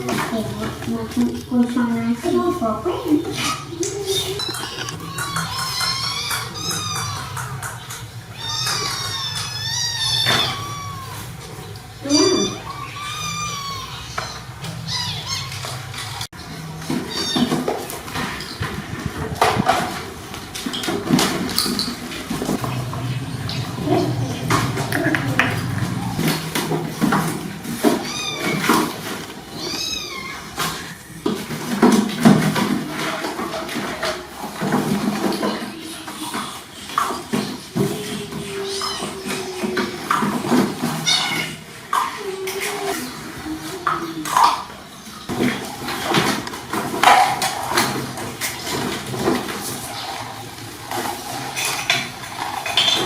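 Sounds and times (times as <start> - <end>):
dishes clinking and clattering: 0.0 - 53.0
kitten meowing: 4.4 - 15.8, 28.0 - 28.9, 29.5 - 31.0.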